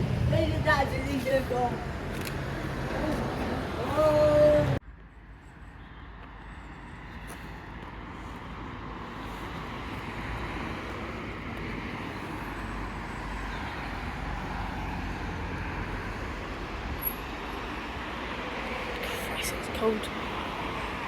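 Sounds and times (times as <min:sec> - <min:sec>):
vehicle rumble and road noise: 0:00.0 - 0:21.0.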